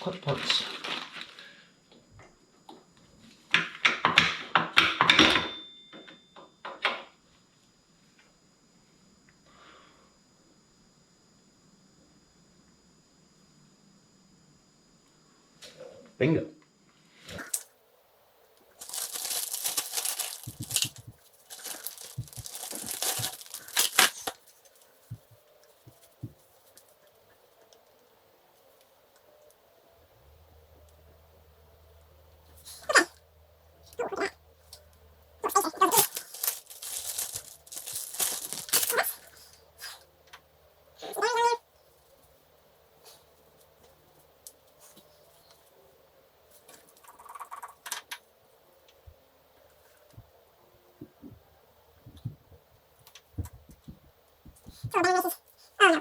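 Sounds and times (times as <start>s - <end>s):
bag crinkling and tearing: 0.3s - 1.5s, 18.8s - 24.9s, 35.5s - 39.4s
metal parts clattering: 18.8s - 24.3s, 35.9s - 39.2s.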